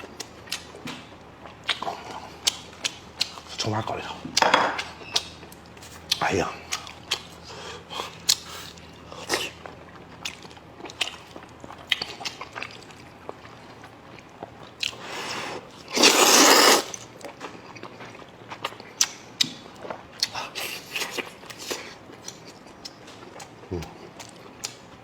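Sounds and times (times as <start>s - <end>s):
chewing and mouth smacks: 0.0s - 25.0s
loud slurp of noodles: 15.2s - 17.0s.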